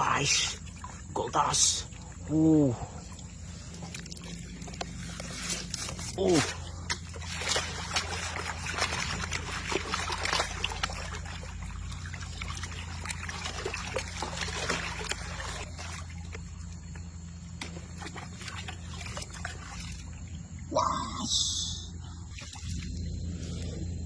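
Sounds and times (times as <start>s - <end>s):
water sloshing in a pan: 0.0s - 20.7s
low steady hum: 0.0s - 24.0s
gravel clicking and scraping: 3.3s - 19.4s.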